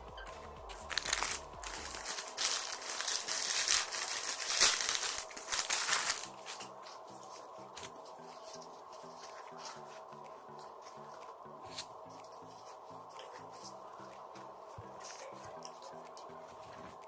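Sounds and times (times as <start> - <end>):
faint background music: 0.0 - 17.0
crunching of crispy food: 0.7 - 6.6.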